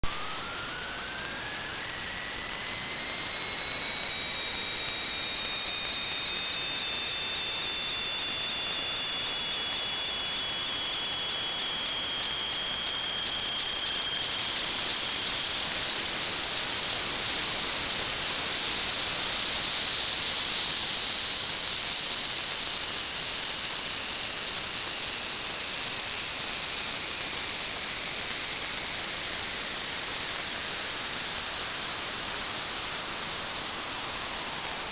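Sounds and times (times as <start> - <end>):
hissing pressurized flow with whistle: 4.8 - 30.2.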